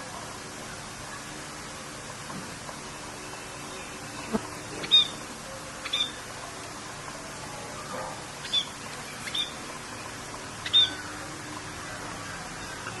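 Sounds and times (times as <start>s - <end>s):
rain hissing: 0.0s - 13.0s
small bird chirping: 4.2s - 5.2s, 5.8s - 6.2s, 8.4s - 9.6s, 10.6s - 11.1s.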